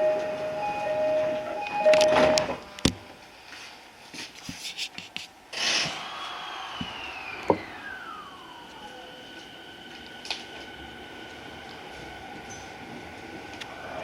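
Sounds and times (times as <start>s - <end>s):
tone gliding down in pitch: 0.0s - 2.5s
train motor whine: 0.0s - 2.9s, 5.5s - 14.0s.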